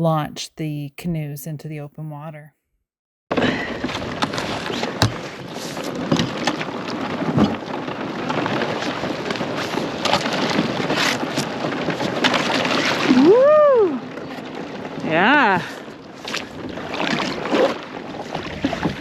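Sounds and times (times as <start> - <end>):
canoe scraping over ice and snow: 3.3 - 13.3, 14.0 - 19.0.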